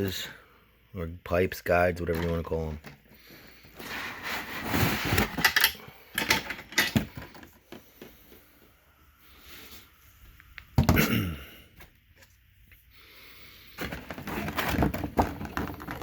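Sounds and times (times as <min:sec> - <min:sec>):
parts clicking and knocking: 0:02.0 - 0:03.1, 0:05.2 - 0:08.2.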